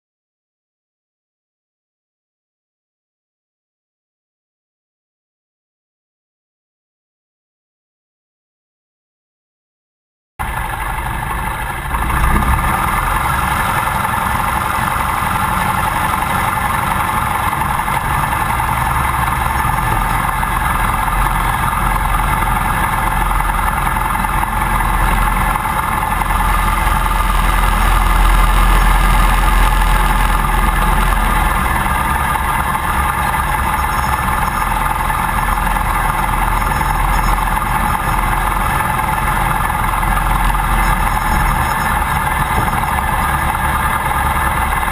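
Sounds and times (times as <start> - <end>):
propeller plane engine droning: 10.4 - 44.9.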